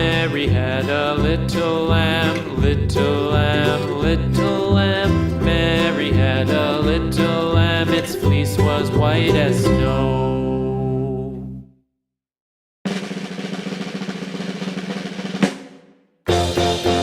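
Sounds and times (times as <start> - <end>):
snare drum roll with hit: 12.9 - 17.0
final song chord ringing: 16.3 - 17.0.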